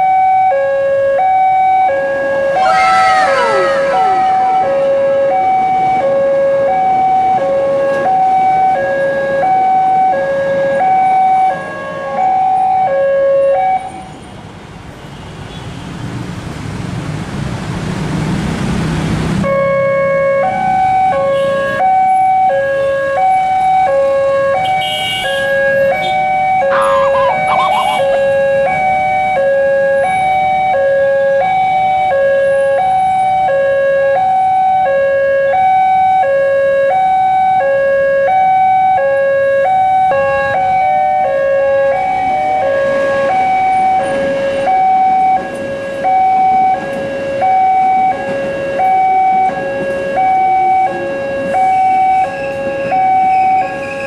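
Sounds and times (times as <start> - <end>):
rising rumble: 2.6 - 6.0
level crossing two-tone alarm: 26.3 - 29.4.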